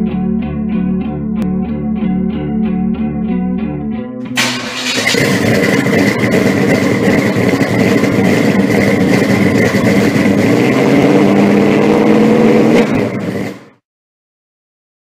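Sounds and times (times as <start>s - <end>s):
car engine running: 4.3s - 13.8s.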